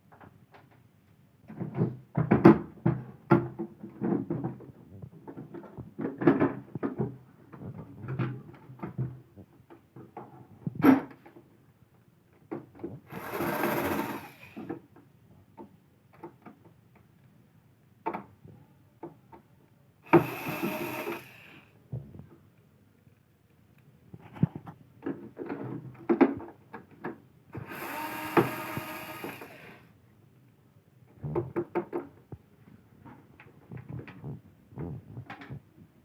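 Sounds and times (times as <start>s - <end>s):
small motor whirring: 13.1s - 14.7s, 20.1s - 21.7s, 27.6s - 29.9s.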